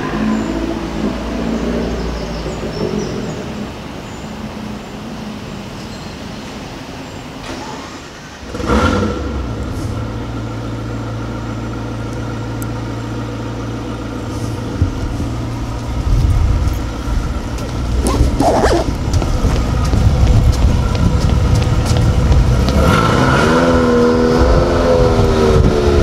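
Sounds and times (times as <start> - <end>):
low street noise: 0.0 - 26.0
car engine starting and idling: 6.8 - 26.0.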